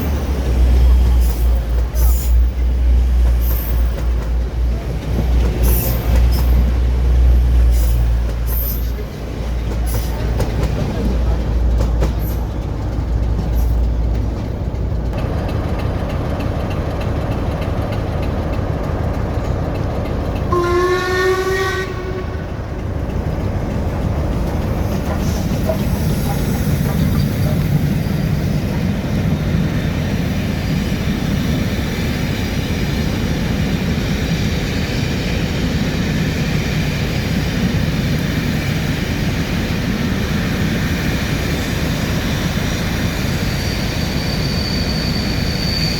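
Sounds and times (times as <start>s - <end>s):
train rumbling past: 0.0s - 45.9s
train horn note: 20.5s - 22.6s.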